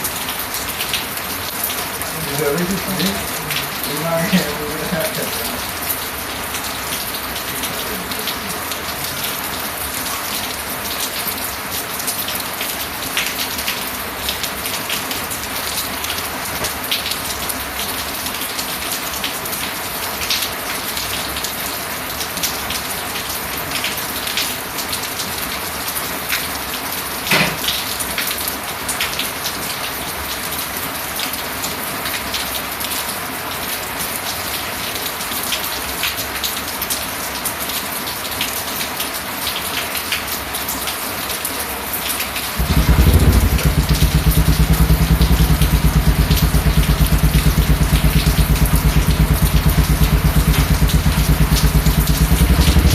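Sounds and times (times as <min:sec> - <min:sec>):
steady rain falling: 0:00.0 - 0:52.9
close drops ticking: 0:42.6 - 0:52.9
loud single hit: 0:42.6 - 0:52.9.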